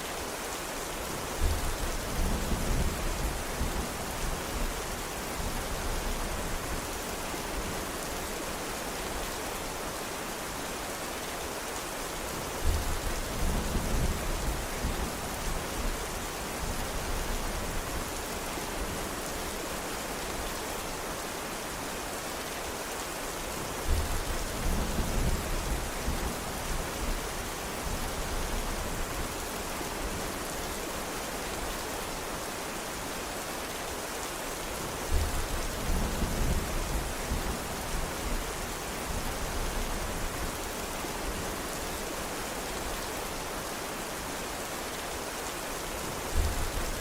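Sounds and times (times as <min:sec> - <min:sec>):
heavy rain falling: 0:00.0 - 0:47.0.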